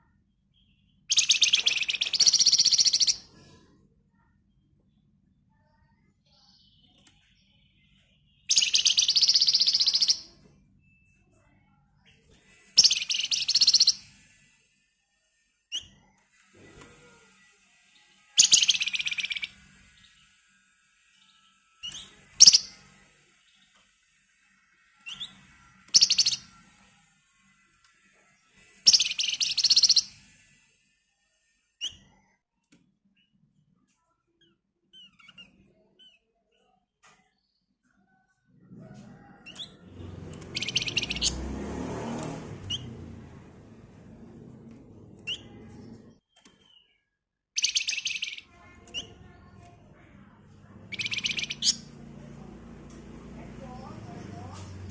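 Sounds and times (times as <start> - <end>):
faint bird chirps: 0.0 - 16.3, 17.0 - 20.5, 21.1 - 24.1, 24.8 - 27.5, 28.1 - 41.4, 45.2 - 52.1
songbird rattling trills: 1.1 - 3.2, 8.5 - 10.3, 12.8 - 14.1, 18.4 - 19.6, 21.9 - 22.8, 25.9 - 26.5, 28.8 - 30.2, 47.6 - 48.4, 50.9 - 52.0.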